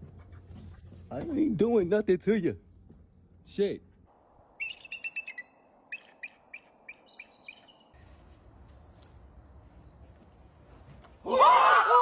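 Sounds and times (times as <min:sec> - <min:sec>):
eagle chirping calls: 0:04.6 - 0:08.0.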